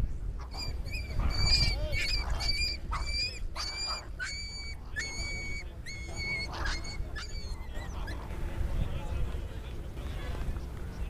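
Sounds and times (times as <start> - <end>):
bird shrill calls: 0.5 - 8.2.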